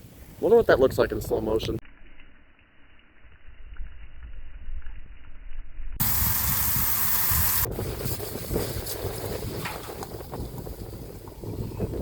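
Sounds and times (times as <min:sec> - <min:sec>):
wind on microphone: 0:03.5 - 0:12.0
loud hiss: 0:06.0 - 0:08.2
trash fire burning: 0:06.0 - 0:12.0.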